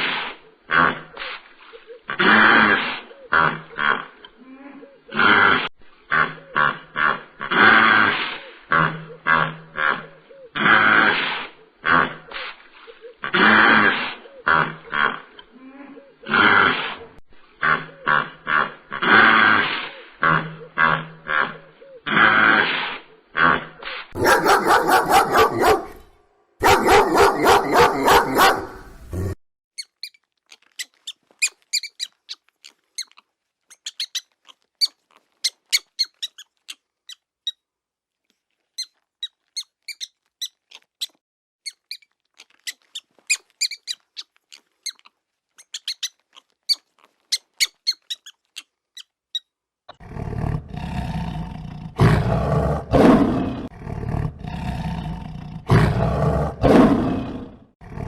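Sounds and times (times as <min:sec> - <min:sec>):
lion roaring: 0:23.6 - 0:29.4, 0:50.0 - 0:58.0
dog barking: 0:24.2 - 0:29.0
faint high squeaks: 0:29.8 - 0:37.6, 0:38.8 - 0:49.5.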